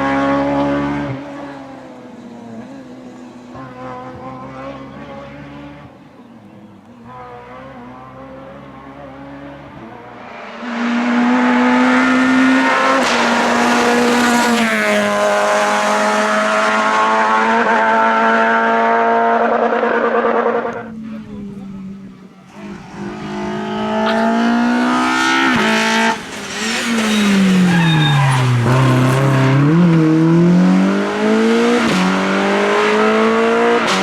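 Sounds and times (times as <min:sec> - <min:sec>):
rally car engine at high revs: 0:00.0 - 0:06.1, 0:07.0 - 0:34.0
distant rally car revving: 0:00.0 - 0:34.0.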